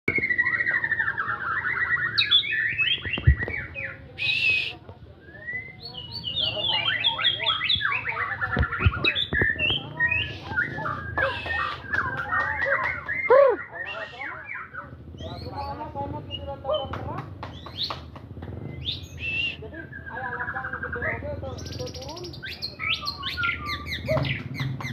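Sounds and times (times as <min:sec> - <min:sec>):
bird singing trilled song: 0:00.1 - 0:24.9.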